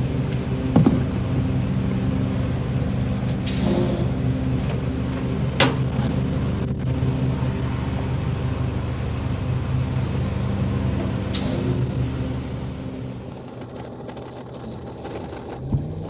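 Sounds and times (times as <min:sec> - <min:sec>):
garbage truck engine running: 0:00.0 - 0:16.0
sharp knock: 0:00.7 - 0:01.5.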